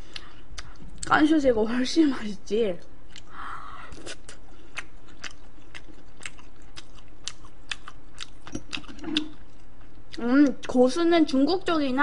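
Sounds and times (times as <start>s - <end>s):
crunchy chewing of fried shrimp: 3.0s - 10.2s.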